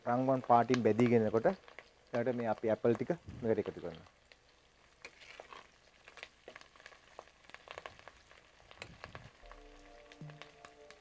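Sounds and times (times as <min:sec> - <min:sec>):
faint sizzling with crackles: 0:00.0 - 0:11.0
metal spoon stirring: 0:05.0 - 0:06.6.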